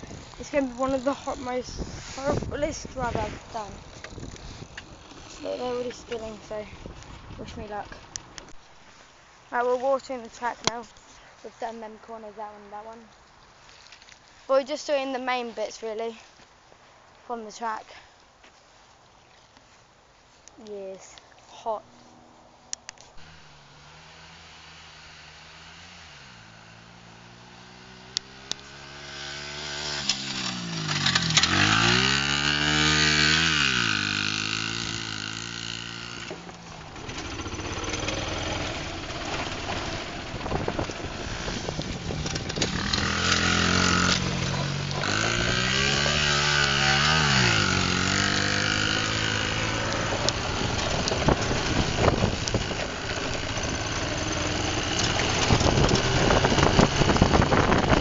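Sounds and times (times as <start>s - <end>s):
pit bike engine revving: 0.0s - 6.9s, 23.2s - 58.0s.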